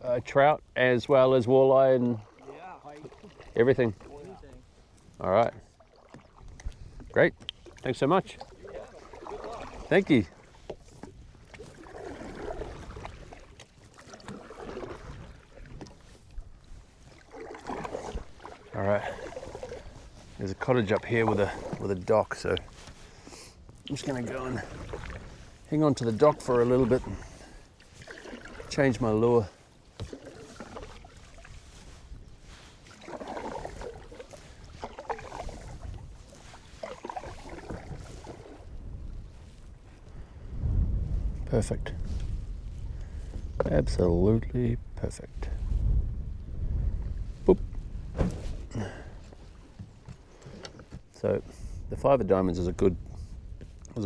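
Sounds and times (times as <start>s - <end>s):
paddle splashing in water: 1.9s - 40.2s, 47.2s - 51.1s
wind rumble on microphone: 33.3s - 54.0s.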